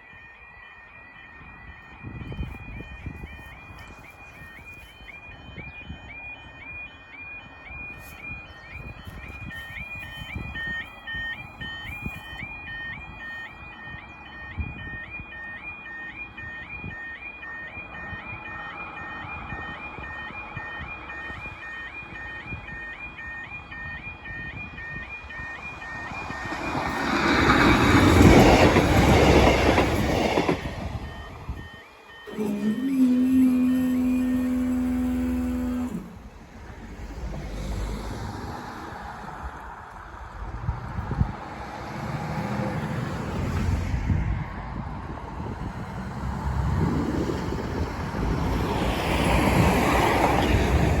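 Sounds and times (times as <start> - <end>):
crossing warning alarm warbling: 0.0 - 51.0
wind buffeting microphone: 1.4 - 6.3, 7.6 - 15.3, 23.8 - 31.7, 33.0 - 51.0
train passing over rails: 25.3 - 51.0
road traffic driving past: 25.8 - 51.0.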